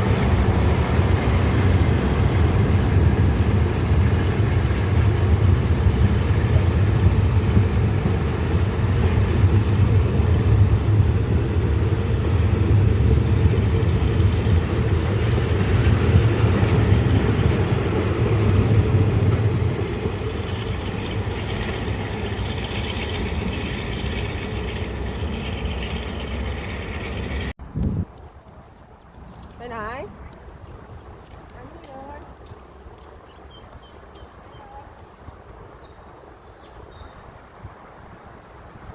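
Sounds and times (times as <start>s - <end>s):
diesel train engine rumble: 0.0s - 28.2s
train running noise: 0.0s - 38.9s.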